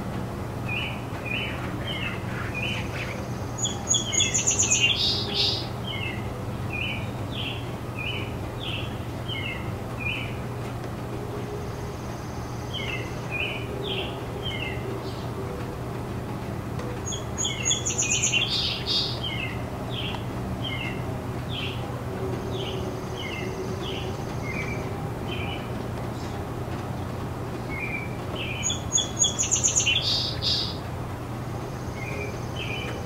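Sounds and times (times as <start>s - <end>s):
birds chirping: 0.0s - 33.0s
low background hum: 0.0s - 33.0s
loud rapid bird trill: 0.7s - 10.3s, 17.0s - 21.8s, 27.7s - 30.8s.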